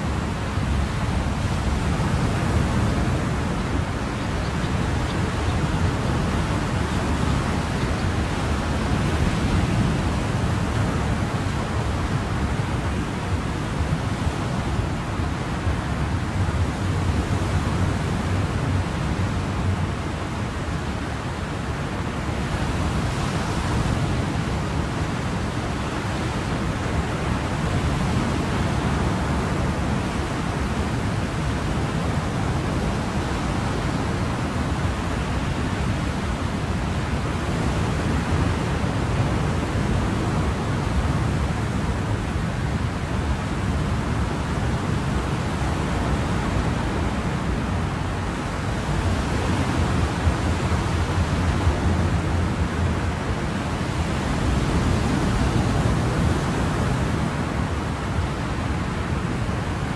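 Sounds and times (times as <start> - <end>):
ocean waves washing: 21.4 - 59.9.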